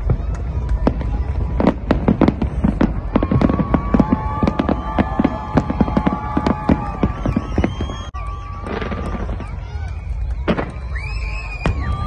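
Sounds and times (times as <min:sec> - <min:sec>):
fireworks bangs: 0:00.0 - 0:12.0
steady whistle-like tone: 0:07.1 - 0:12.0.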